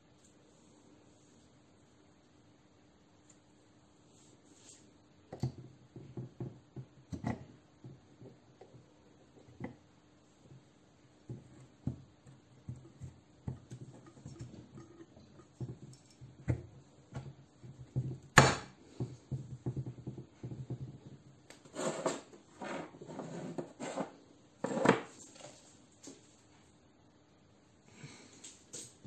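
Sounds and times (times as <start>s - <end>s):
scraping and rustling: 21.6s - 26.5s.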